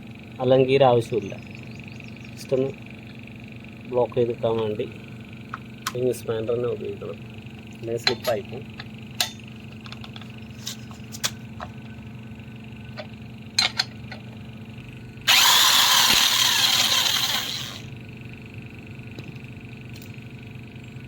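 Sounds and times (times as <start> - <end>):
power tool running: 15.2 - 18.0.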